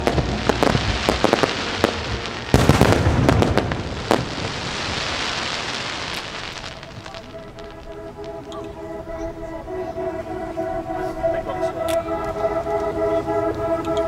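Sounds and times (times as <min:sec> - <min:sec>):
fireworks bursting: 0:00.0 - 0:10.6
fireworks crackling: 0:00.0 - 0:14.0.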